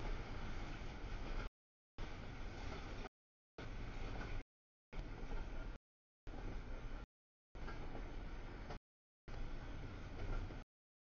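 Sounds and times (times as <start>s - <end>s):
train wheels rumbling on rail: 7.6s - 10.6s.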